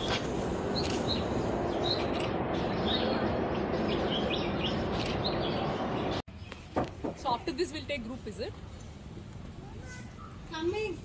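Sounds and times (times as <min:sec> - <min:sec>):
outdoor background rush: 0:00.0 - 0:11.0
small birds chirping: 0:00.7 - 0:06.7.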